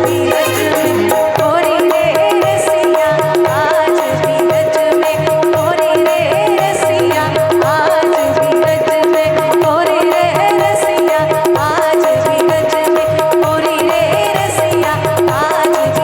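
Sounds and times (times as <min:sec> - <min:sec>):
held drone note: 0:00.0 - 0:01.7
ornamented melodic lead: 0:00.0 - 0:02.6
even drum beat: 0:00.0 - 0:16.0.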